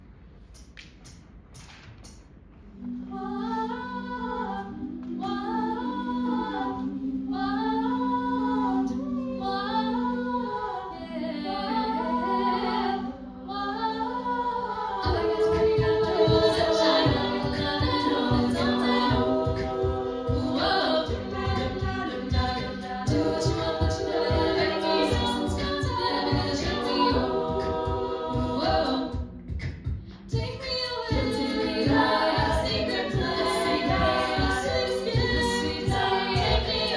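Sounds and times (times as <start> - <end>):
a cappella group singing: 2.6 - 36.9
beatboxing: 15.0 - 36.9.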